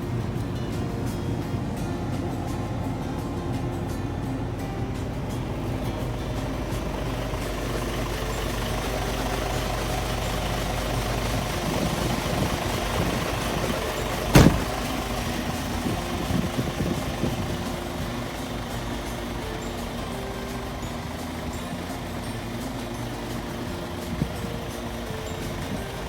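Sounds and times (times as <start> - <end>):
diesel truck engine idling: 0.0 - 26.0
sharp knock: 14.3 - 14.8.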